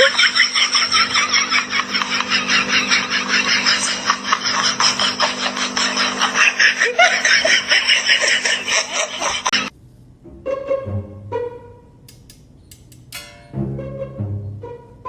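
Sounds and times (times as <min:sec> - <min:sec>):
person laughing hard: 0:00.0 - 0:09.7
steady low hum: 0:00.0 - 0:15.0.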